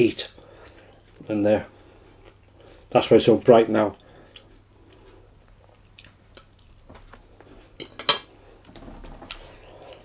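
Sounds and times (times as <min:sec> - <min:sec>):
person chewing food: 0:04.0 - 0:07.9.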